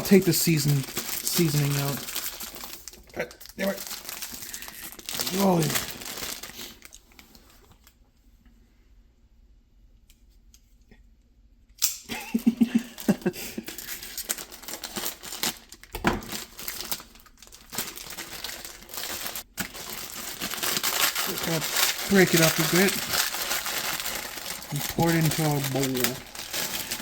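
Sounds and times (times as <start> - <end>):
plastic wrapper crinkling: 0.0 - 7.9, 13.0 - 27.0
dry noodles crunching: 13.7 - 27.0.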